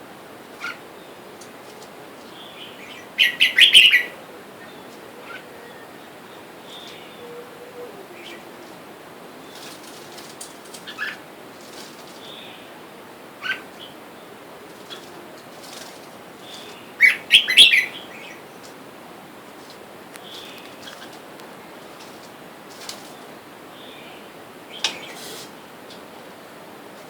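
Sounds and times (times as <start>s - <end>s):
bulbuls chirping: 0.6s - 18.9s, 19.6s - 26.4s
wings fluttering: 9.5s - 12.3s, 14.7s - 16.9s, 19.6s - 23.4s.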